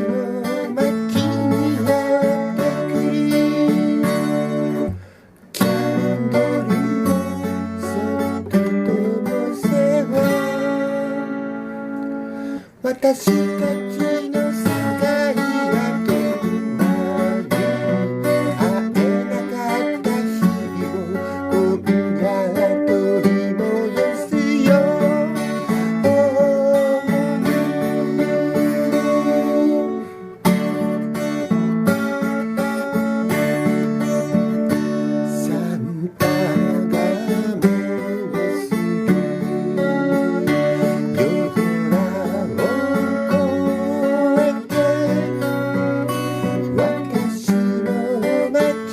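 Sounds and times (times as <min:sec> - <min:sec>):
acoustic guitar strumming chords: 0:00.0 - 0:48.9.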